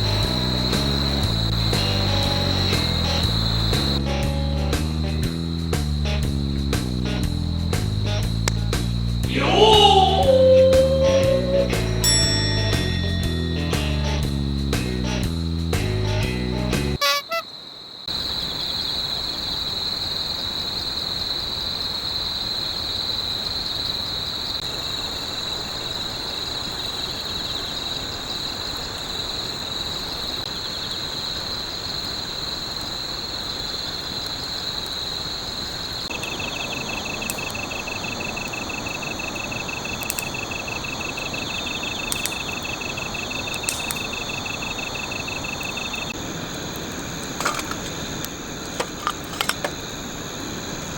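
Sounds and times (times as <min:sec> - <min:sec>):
steady hiss: 0:00.0 - 0:09.5, 0:24.6 - 0:50.9
insects trilling: 0:00.0 - 0:50.9
sharp clicks: 0:08.4 - 0:09.0, 0:40.0 - 0:40.4, 0:42.0 - 0:44.6.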